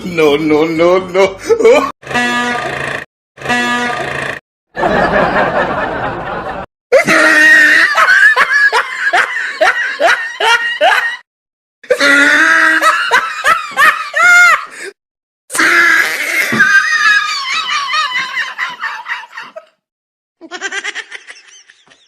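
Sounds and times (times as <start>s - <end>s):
air horn blast: 2.0s - 4.4s
laughter: 4.8s - 11.2s, 11.9s - 14.7s, 16.6s - 19.8s, 20.4s - 22.0s.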